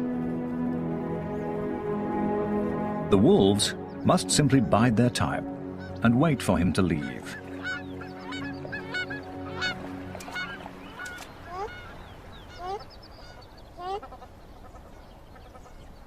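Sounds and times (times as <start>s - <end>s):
sustained music chord: 0.0s - 12.5s
honking animal calls: 6.9s - 14.3s.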